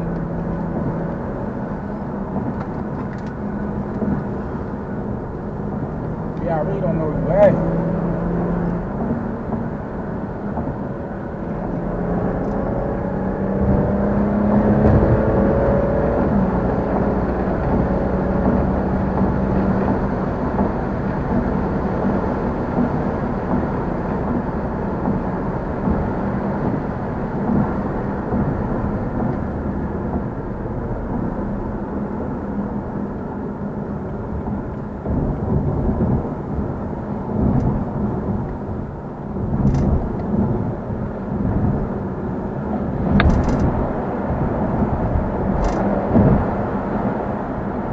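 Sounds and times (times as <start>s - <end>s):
car engine revving: 0.0s - 47.9s
road noise: 0.0s - 47.9s.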